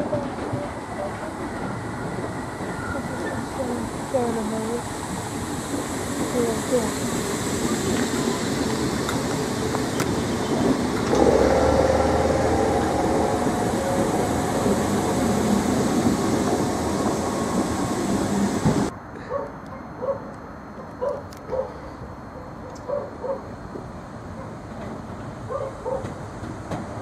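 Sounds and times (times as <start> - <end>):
train wheels rumbling on rails: 0.0 - 18.9, 23.6 - 27.0
train motor hum: 0.1 - 18.9.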